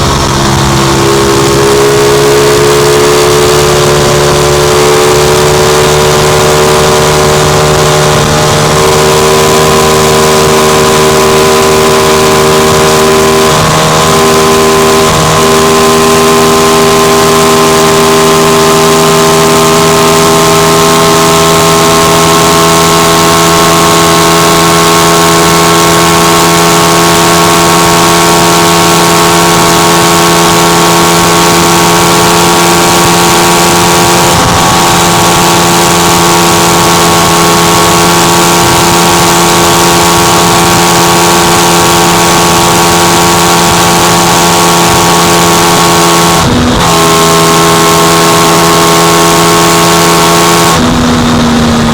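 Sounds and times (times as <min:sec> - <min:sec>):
wind rushing: 0:00.0 - 0:02.4
motorcycle engine at high speed: 0:00.0 - 0:51.9.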